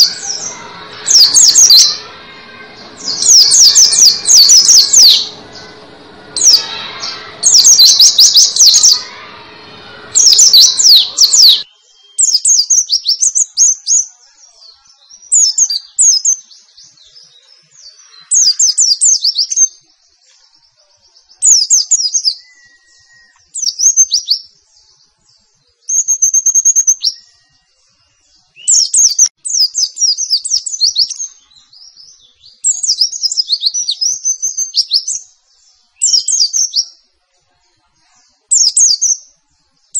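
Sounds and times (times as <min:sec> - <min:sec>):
bird singing fast chirps: 0:00.0 - 0:19.9, 0:20.6 - 0:37.0, 0:38.5 - 0:39.9
background noise: 0:00.0 - 0:39.9.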